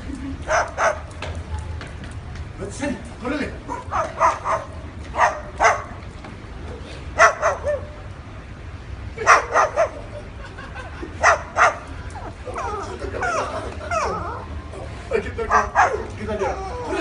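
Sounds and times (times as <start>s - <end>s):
cockatoo barking calls: 3.7s - 6.0s, 7.2s - 8.0s, 9.2s - 10.2s.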